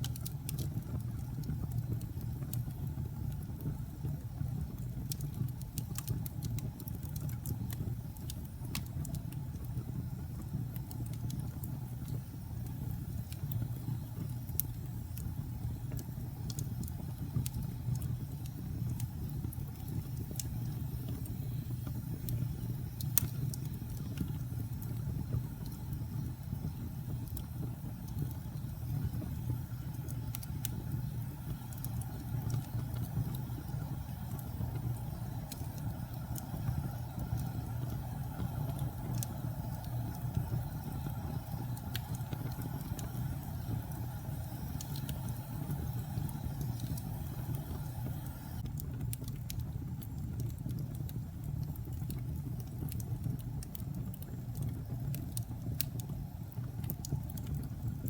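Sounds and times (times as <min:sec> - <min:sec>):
fire crackles and pops: 0:00.0 - 0:58.0
wood fire rumbling: 0:00.0 - 0:58.0.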